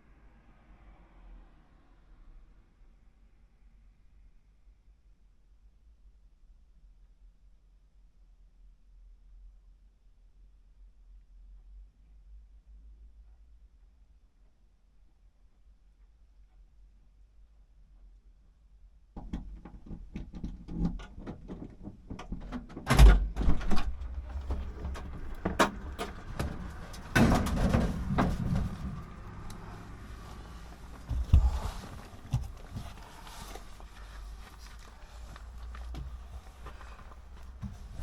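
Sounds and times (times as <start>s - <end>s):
clicks and knocks: 19.2s - 33.5s
heavy thumps: 22.9s - 38.0s.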